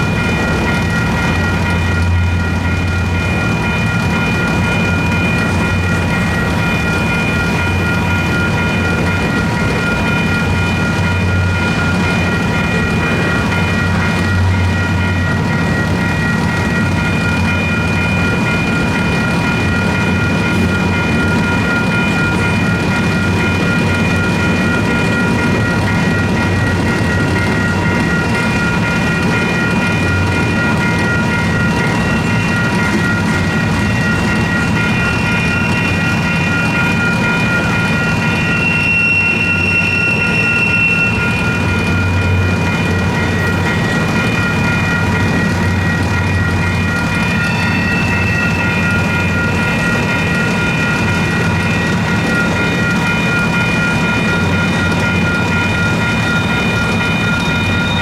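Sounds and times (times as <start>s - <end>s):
crossing bell ringing: 0.0s - 58.0s
freight train rumbling past: 0.0s - 58.0s
train wheels clacking on rails: 0.0s - 58.0s.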